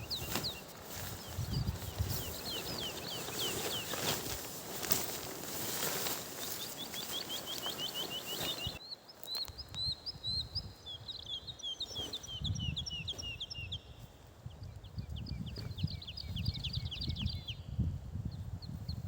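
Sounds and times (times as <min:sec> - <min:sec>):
hissing rustle: 0:00.0 - 0:08.8
songbird chirping: 0:00.0 - 0:19.0.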